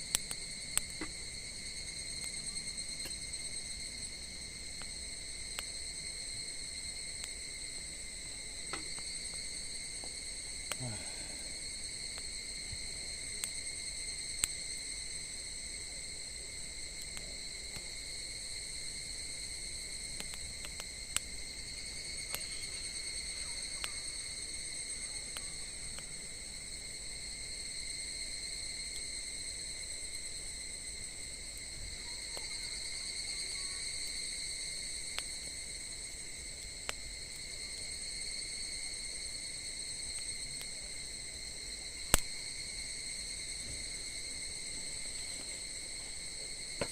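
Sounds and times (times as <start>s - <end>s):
crickets trilling: 0.0s - 46.9s
sharp isolated clicks: 0.1s - 1.2s, 14.4s - 14.6s, 20.2s - 21.3s, 22.3s - 22.6s, 42.1s - 42.3s.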